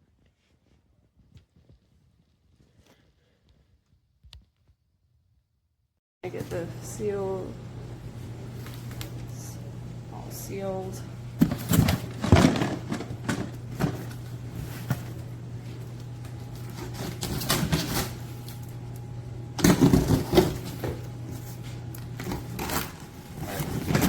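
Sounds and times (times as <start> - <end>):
steady low hum: 6.2 - 24.0.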